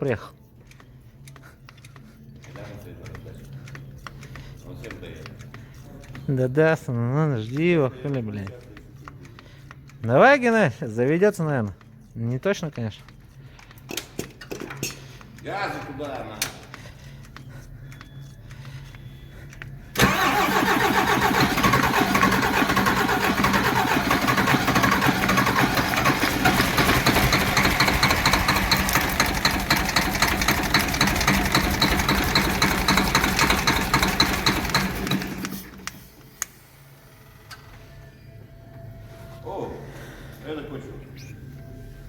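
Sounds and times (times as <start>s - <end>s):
rhythmic engine clatter: 19.4s - 35.9s
diesel engine starting and running: 19.9s - 37.9s.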